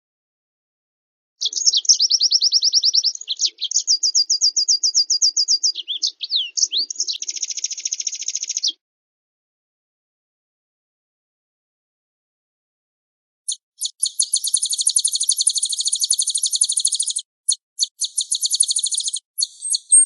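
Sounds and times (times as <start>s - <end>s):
songbird song with buzzy trill: 1.4s - 8.8s, 13.5s - 20.0s.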